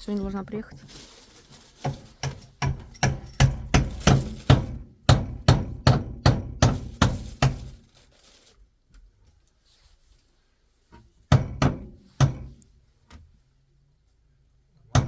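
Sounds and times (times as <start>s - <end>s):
hammer striking wood: 1.8s - 7.6s, 11.3s - 12.6s.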